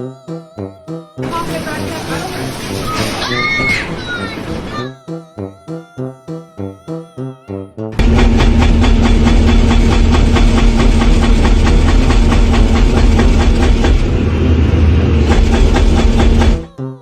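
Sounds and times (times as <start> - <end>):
machinery clattering: 1.2 - 4.9, 8.0 - 16.7.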